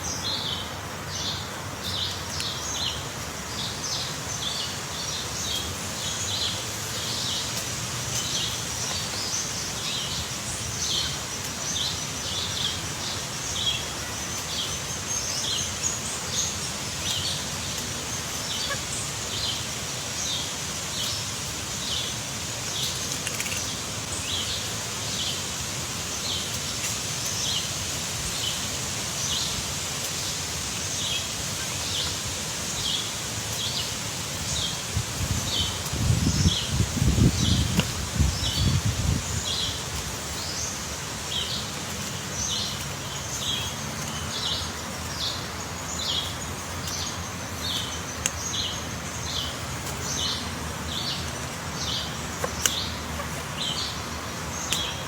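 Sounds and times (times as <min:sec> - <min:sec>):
outdoor background hiss: 0:00.0 - 0:55.0.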